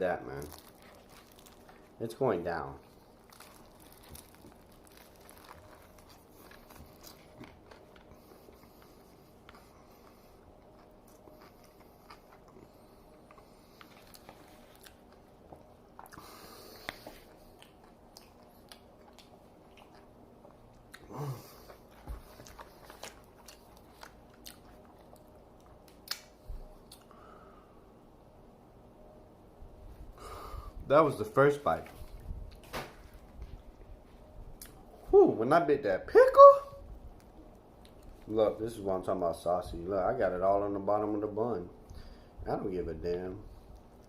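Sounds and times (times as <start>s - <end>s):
closed-mouth hum: 0.0s - 44.0s
crunchy biting and chewing: 0.4s - 2.0s, 2.8s - 15.3s, 15.9s - 27.1s.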